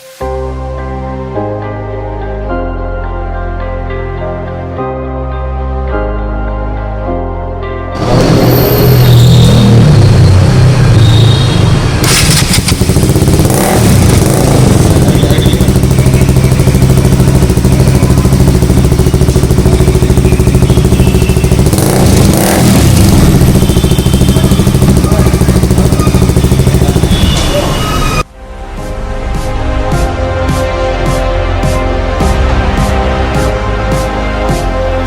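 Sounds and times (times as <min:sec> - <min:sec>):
motorcycle engine revving: 0:08.0 - 0:28.3.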